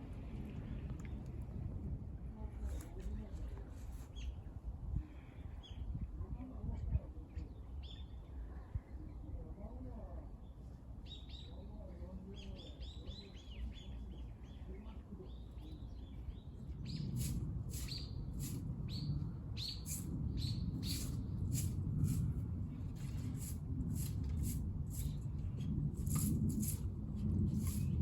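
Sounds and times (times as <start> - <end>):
small birds chirping: 10.4 - 22.2.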